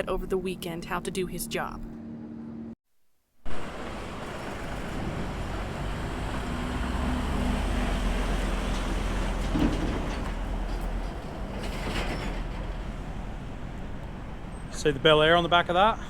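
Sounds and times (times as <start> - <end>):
vehicle engine drone: 1.6 - 2.8, 3.5 - 11.8
tyre and road noise: 3.5 - 16.0.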